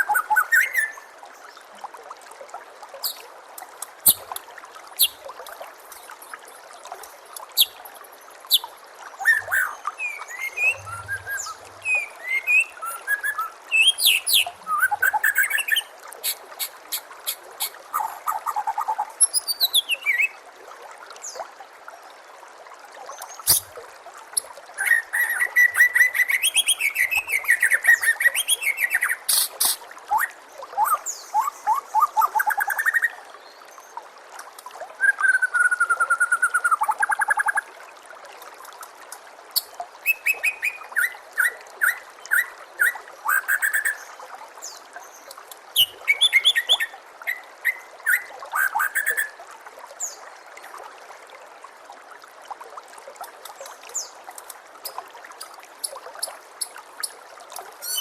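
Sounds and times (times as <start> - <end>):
trickle of water: 0.0 - 58.0
bird singing: 9.2 - 15.8.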